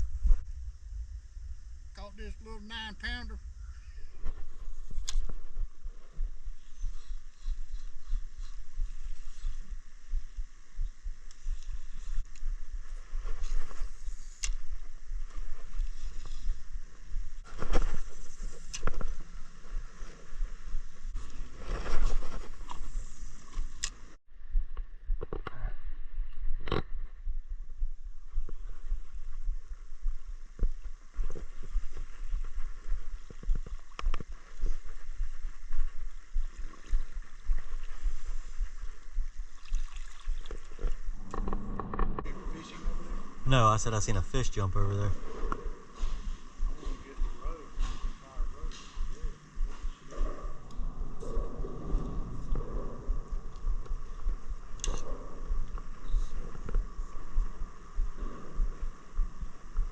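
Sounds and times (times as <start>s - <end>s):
low hum: 0.0s - 59.9s
water lapping against boat hull: 38.8s - 41.3s
boat engine rumble: 40.2s - 43.5s.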